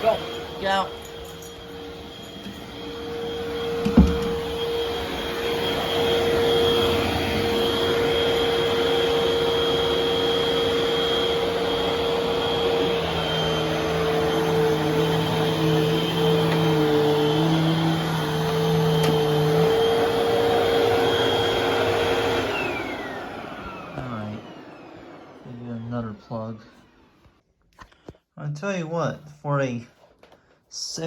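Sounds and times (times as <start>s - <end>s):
vacuum cleaner motor whining: 0.0s - 27.4s
vacuum cleaner switch knock: 3.8s - 4.5s.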